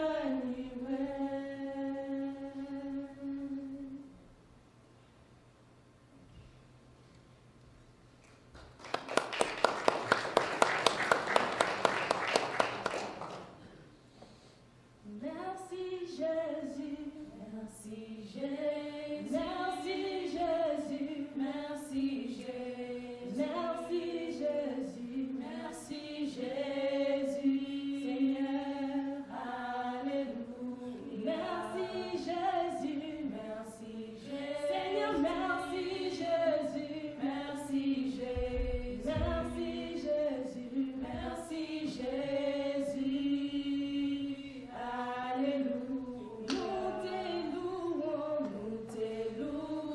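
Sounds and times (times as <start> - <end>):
choir singing a hymn: 0.0 - 4.1, 15.1 - 49.9.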